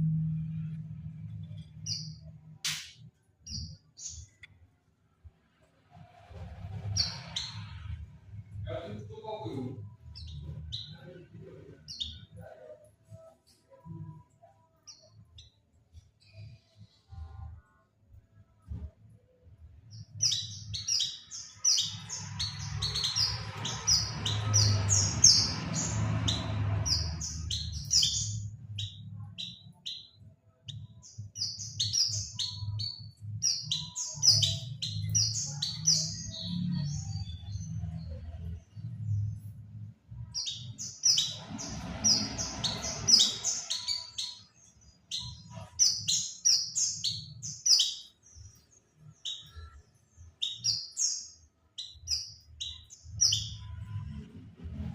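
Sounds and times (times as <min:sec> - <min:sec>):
bird chirping and twittering: 0:00.0 - 0:04.6, 0:05.9 - 0:17.6, 0:19.5 - 0:54.9.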